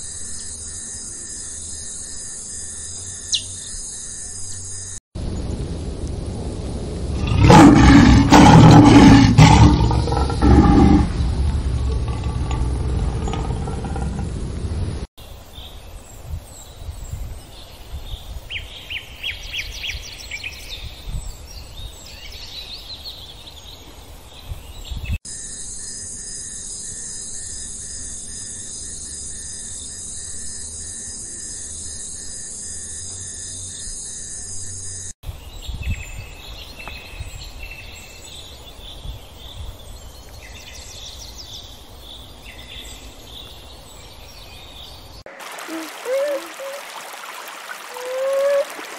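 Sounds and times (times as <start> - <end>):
outdoor ambience: 0.0 - 18.0
insect chorus: 0.0 - 48.9
birds chirping: 7.2 - 15.0, 39.8 - 48.9.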